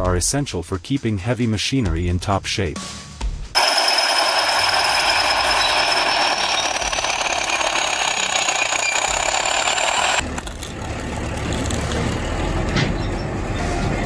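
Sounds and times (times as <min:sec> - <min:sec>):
low engine rumble: 0:10.2 - 0:14.0.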